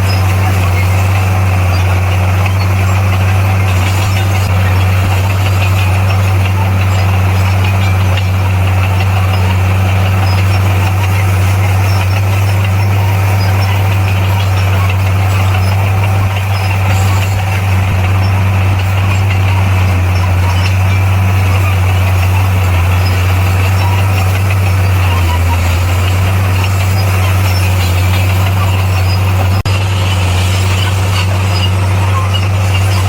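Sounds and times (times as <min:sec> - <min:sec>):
bulldozer engine running: 0:00.0 - 0:33.0.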